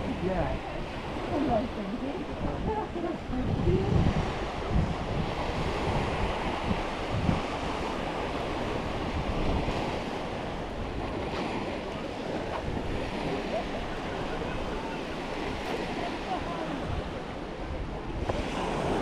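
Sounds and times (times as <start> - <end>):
waves washing onto beach: 0.0 - 19.0
wind gusting on microphone: 0.0 - 19.0.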